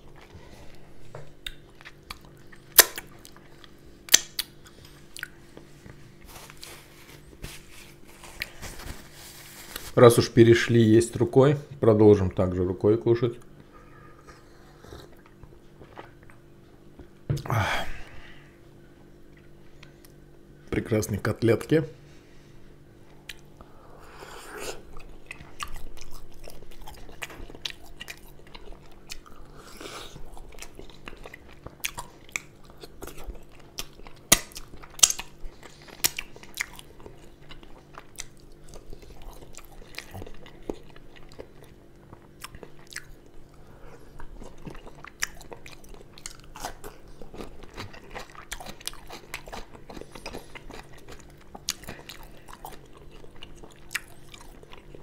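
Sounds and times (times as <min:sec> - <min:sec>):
close chewing and biting: 0:00.0 - 0:10.0, 0:24.4 - 0:55.0
faint steady hum: 0:00.0 - 0:55.0.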